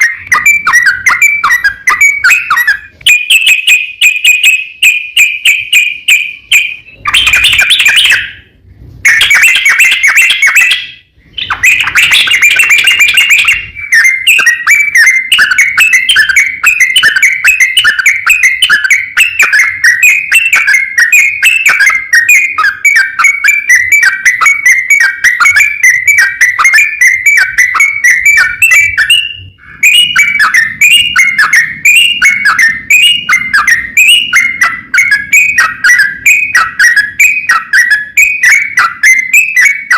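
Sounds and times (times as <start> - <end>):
bird singing chattering notes: 0.0 - 39.9.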